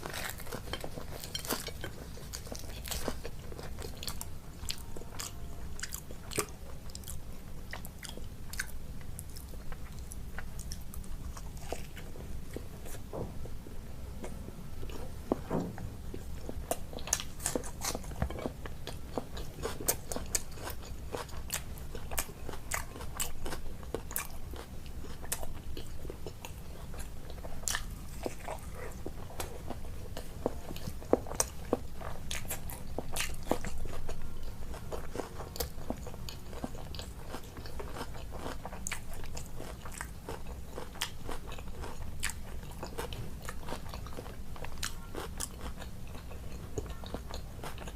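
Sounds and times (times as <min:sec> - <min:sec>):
person chewing and crunching: 0:00.0 - 0:13.1, 0:14.2 - 0:47.9.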